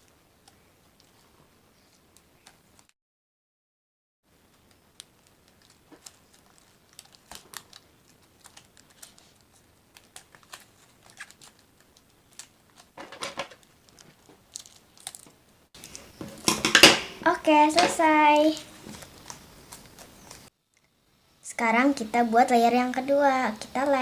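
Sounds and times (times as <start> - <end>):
plastic bottles crinkling on cardboard: 4.6 - 16.9.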